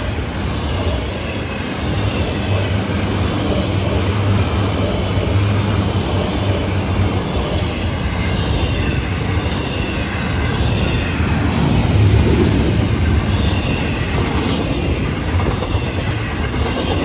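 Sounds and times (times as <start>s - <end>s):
freight train cars rolling past: 0.0s - 17.0s.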